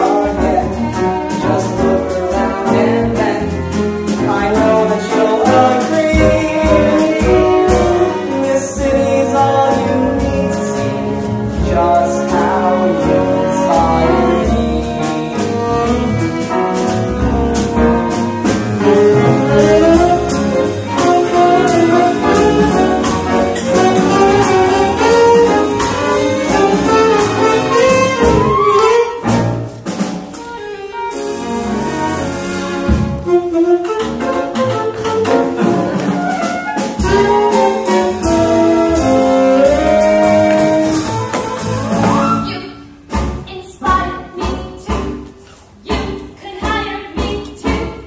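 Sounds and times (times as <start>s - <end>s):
upbeat jazzy band instrumental: 0.0s - 48.0s.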